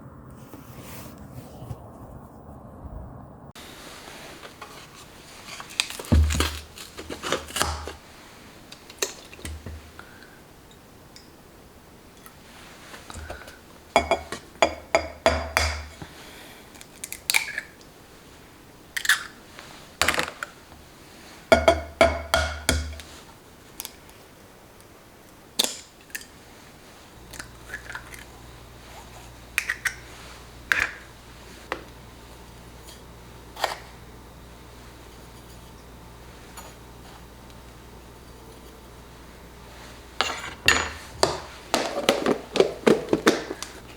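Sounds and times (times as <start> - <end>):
low steady hum: 0.0 - 43.9
utensils and dishes clattering: 40.2 - 43.9.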